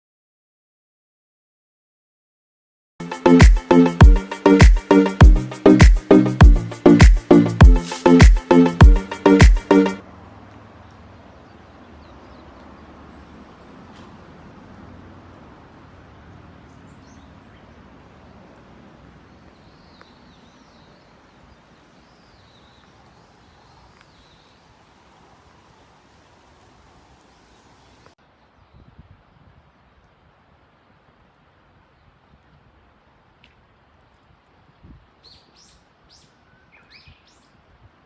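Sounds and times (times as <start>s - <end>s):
music with heavy beat: 3.0s - 10.0s
faint outdoor background noise: 3.0s - 38.0s.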